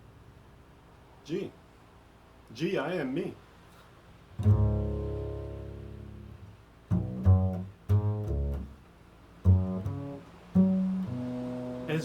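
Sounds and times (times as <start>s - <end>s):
plucked string instrument: 4.4s - 8.8s, 9.4s - 12.0s.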